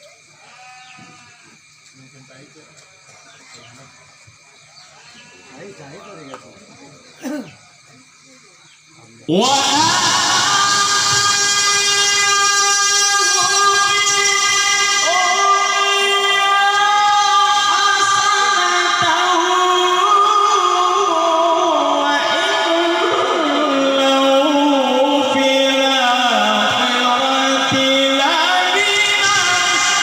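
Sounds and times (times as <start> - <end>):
person singing melismatic notes: 9.3 - 30.0.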